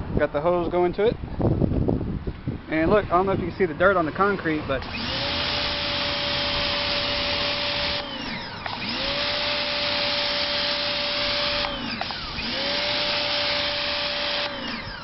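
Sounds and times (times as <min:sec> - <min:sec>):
pressure washer motor hum: 0:04.1 - 0:15.0.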